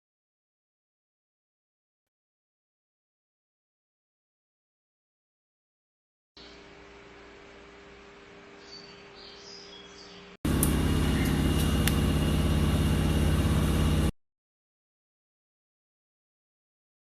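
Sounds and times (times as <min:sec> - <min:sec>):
faint steady hum: 0:06.4 - 0:14.1
loud pulsing buzzing hum: 0:06.4 - 0:14.1.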